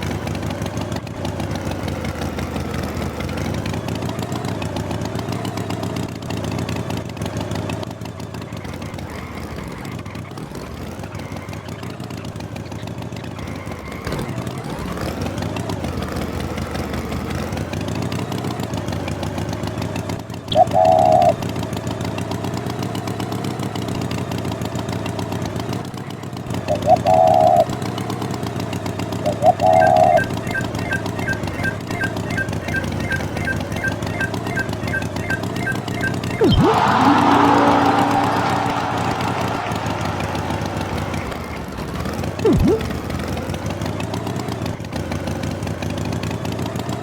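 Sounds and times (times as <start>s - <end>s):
cartoon tractor engine running: 0.0s - 47.0s
loud high honk: 36.4s - 41.6s.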